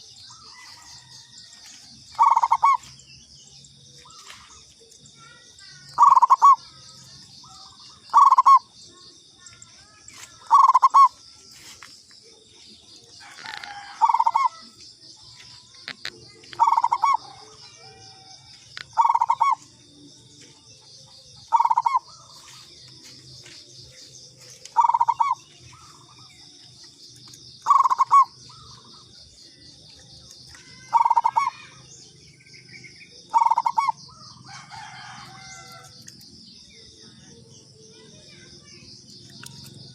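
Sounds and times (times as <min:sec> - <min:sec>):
dove cooing: 0:02.1 - 0:02.9, 0:06.0 - 0:06.7, 0:07.4 - 0:08.7, 0:10.4 - 0:11.2, 0:13.2 - 0:14.7, 0:16.5 - 0:18.3, 0:19.0 - 0:19.7, 0:21.5 - 0:22.3, 0:24.7 - 0:26.2, 0:27.6 - 0:29.0, 0:30.7 - 0:31.7, 0:33.3 - 0:35.8
high-pitched chirring: 0:24.5 - 0:26.1.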